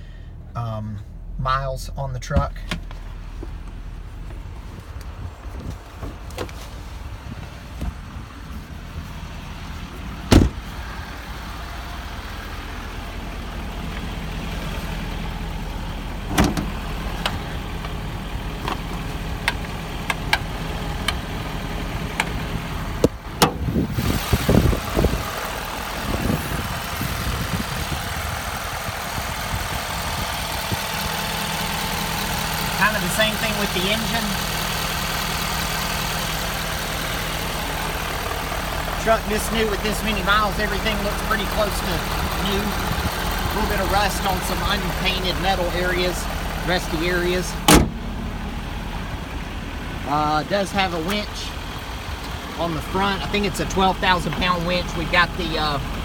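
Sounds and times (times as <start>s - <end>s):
truck engine idling: 0.0s - 56.0s
clunks and knocks: 10.2s - 10.8s, 16.3s - 18.0s, 47.6s - 48.2s.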